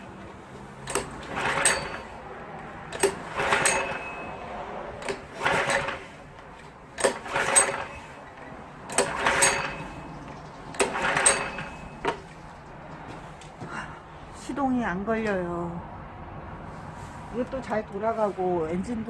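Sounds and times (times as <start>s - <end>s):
pump engine recoil start pulls: 0.0s - 13.6s.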